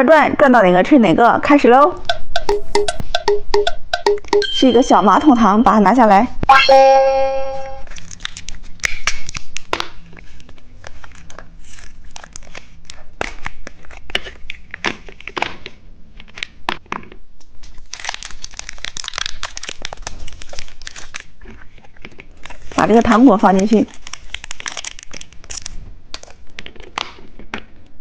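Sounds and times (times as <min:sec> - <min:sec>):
plastic packaging crinkling and tearing: 0:07.8 - 0:16.6, 0:17.5 - 0:27.6.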